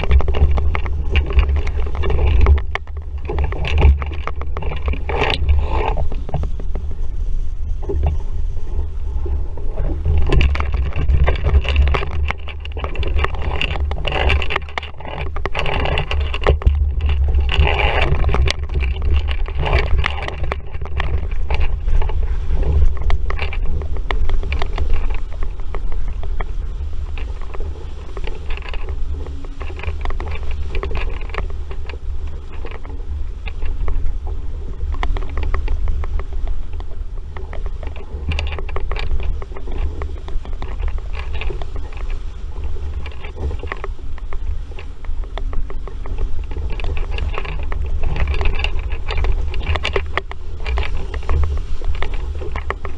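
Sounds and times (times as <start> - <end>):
knocks and rattles: 0.0 - 6.8, 9.8 - 52.9
water splashing against hull: 0.0 - 52.9
wind buffeting microphone: 0.0 - 52.9.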